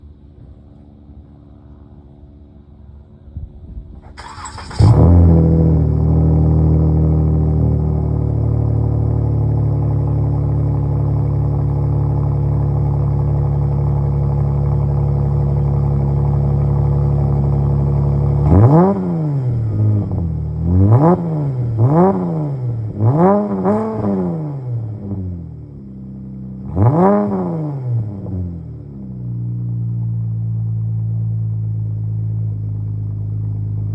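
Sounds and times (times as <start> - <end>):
car engine cranking: 4.0 - 6.0
car engine revving: 4.0 - 25.8, 26.6 - 30.0
car engine idling: 4.0 - 27.4, 28.0 - 33.9.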